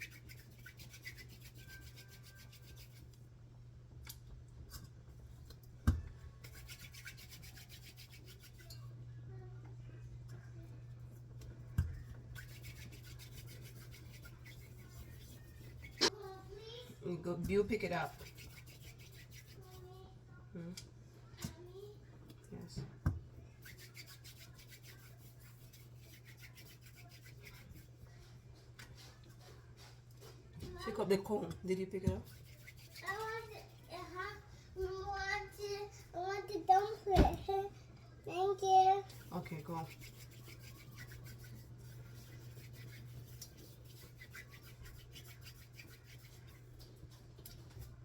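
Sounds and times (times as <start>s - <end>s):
hands rubbing dough: 0.0s - 3.2s, 5.9s - 8.8s, 11.4s - 19.9s, 23.5s - 34.4s, 39.0s - 48.0s.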